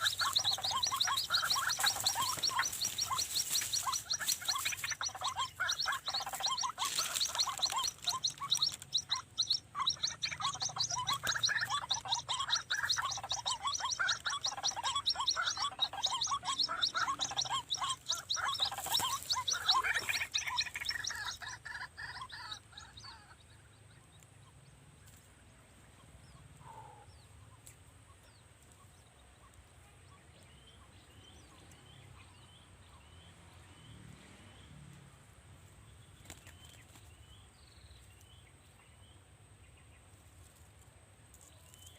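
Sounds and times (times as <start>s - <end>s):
faint high chirps: 0.0s - 23.2s
bird croaking chorus: 0.0s - 23.7s, 26.3s - 27.4s.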